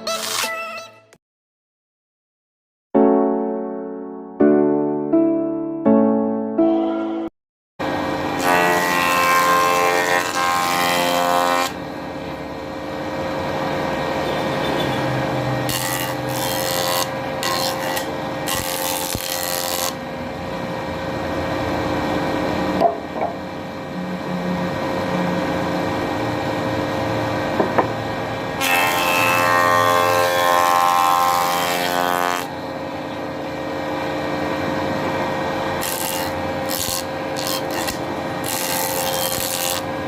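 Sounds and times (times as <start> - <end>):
saw cutting wood: 7.8 - 11.8, 14.2 - 20.8, 27.6 - 32.7, 35.3 - 40.0
woodworking machine humming: 7.8 - 40.0.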